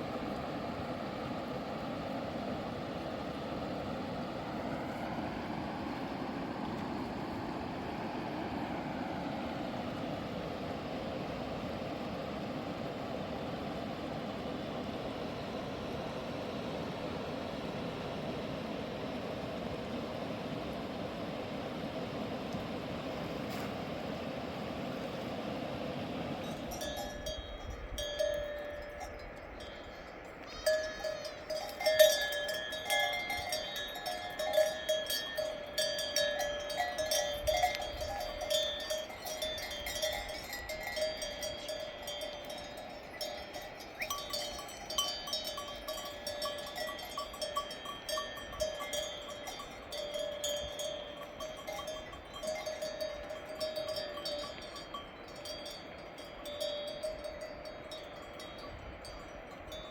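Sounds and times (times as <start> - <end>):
sheep bells clanking: 26.4 - 59.9.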